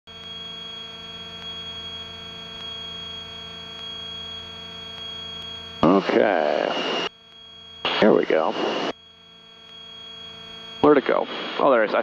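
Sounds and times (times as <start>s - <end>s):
aircraft cabin engine drone: 0.1s - 12.0s.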